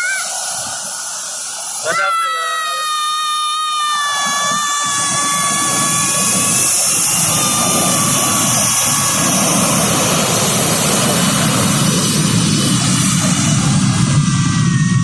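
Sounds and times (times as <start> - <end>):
jet engines hissing and whining: 0.0 - 15.0
low engine rumble: 4.3 - 15.0.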